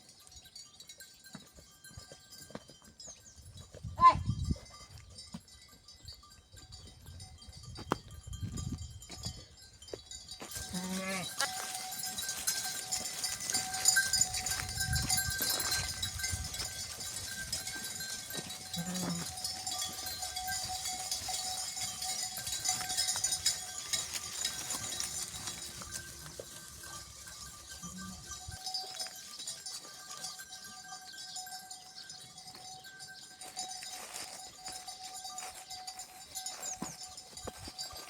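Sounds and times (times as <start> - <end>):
bells ringing: 0.0 - 38.0
farm animals bleating: 10.5 - 11.8, 18.0 - 19.9, 27.6 - 28.4.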